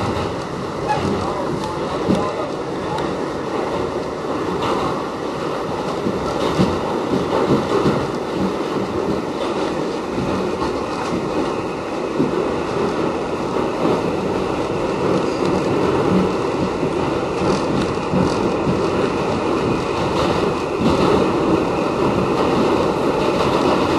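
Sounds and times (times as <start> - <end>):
subway car wheels on rail: 0.0 - 23.9.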